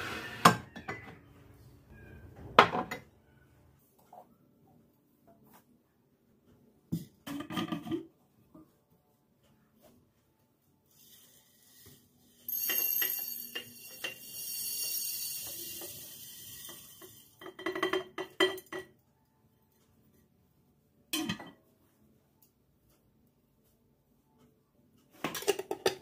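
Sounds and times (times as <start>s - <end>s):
dishes and utensils clinking: 0.4s - 1.2s, 7.2s - 8.1s, 12.5s - 19.0s, 21.1s - 21.7s, 25.1s - 26.0s.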